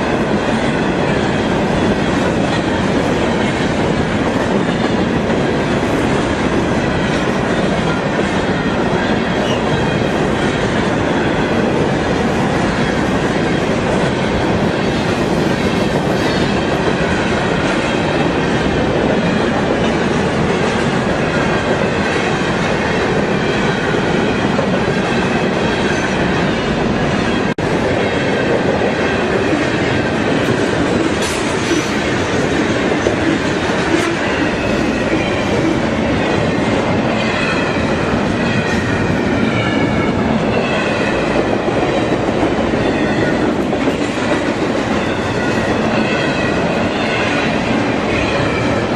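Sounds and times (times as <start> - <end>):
wheels clattering on rail: 27.9 - 48.9.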